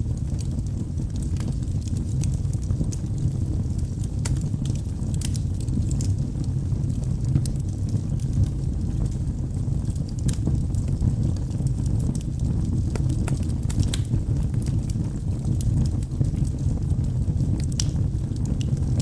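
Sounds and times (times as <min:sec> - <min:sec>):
logs crackling and popping: 0:00.0 - 0:19.0
wood fire rumbling: 0:00.0 - 0:19.0.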